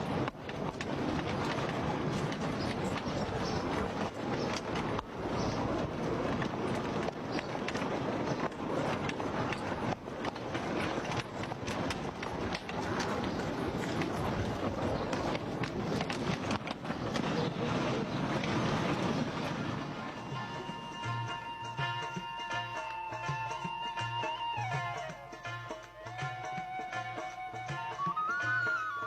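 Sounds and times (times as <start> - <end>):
rapid clicks and knocks: 0.0 - 17.5
trolley wheels rumbling on rails: 0.0 - 29.0.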